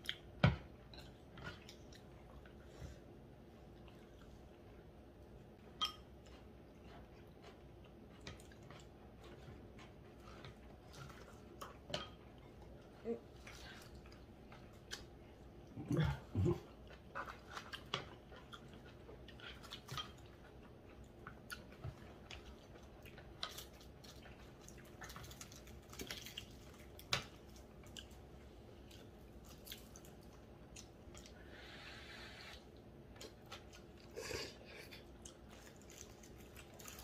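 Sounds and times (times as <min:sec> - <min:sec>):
people chewing: 0:00.8 - 0:37.0.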